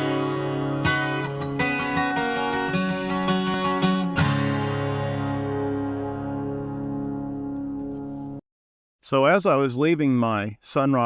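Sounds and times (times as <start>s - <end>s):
acoustic guitar strummed chords: 0.0s - 8.4s.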